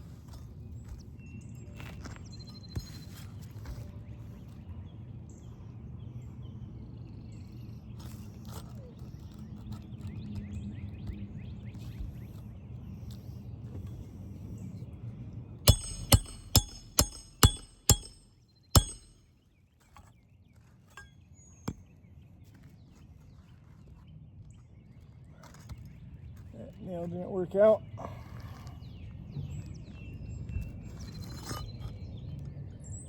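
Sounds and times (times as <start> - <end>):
hammer striking metal: 15.7 - 19.2.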